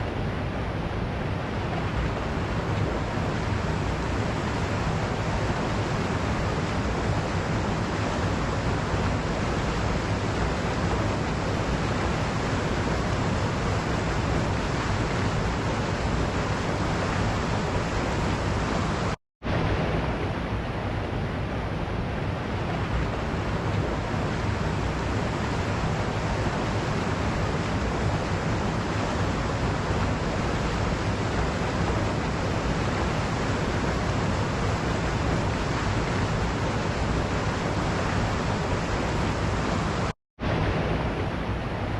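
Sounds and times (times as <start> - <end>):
waterfall roaring: 0.0 - 41.9.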